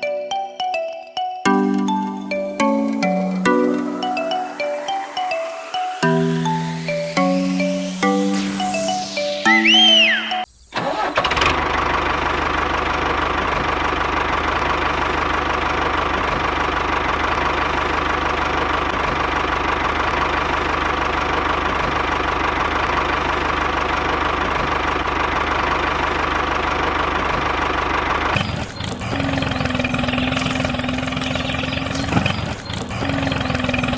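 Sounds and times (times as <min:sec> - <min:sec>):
rising and falling electronic tone: 0:01.5 - 0:10.5.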